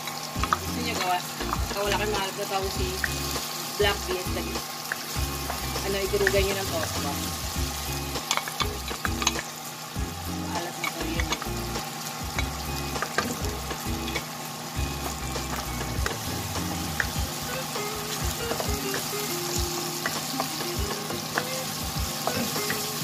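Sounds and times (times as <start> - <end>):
oil sizzling: 0.0 - 23.0.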